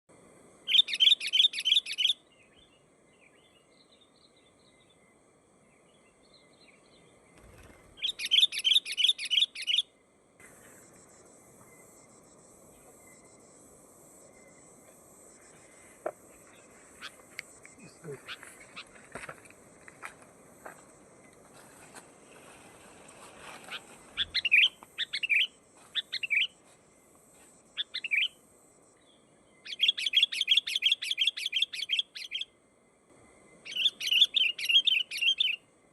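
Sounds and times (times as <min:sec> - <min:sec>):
soft bird chirps: 0:00.7 - 0:05.2, 0:05.8 - 0:13.4, 0:22.5 - 0:26.7, 0:27.7 - 0:32.5, 0:33.3 - 0:35.6.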